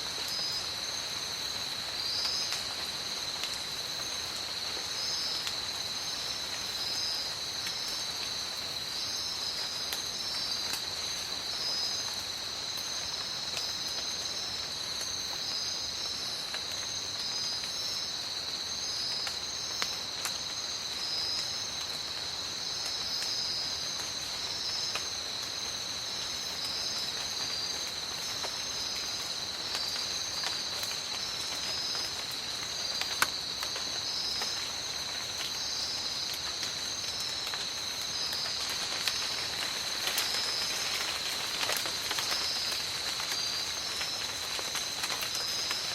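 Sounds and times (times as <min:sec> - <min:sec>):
high insect trill: 0:00.0 - 0:45.9
steady rain falling: 0:00.0 - 0:45.9.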